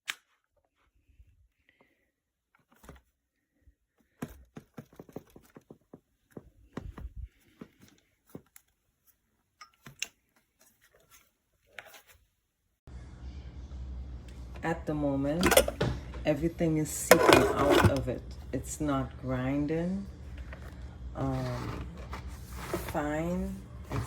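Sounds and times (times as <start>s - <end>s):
handling clicks and rustles: 3.9s - 12.2s, 15.4s - 15.9s.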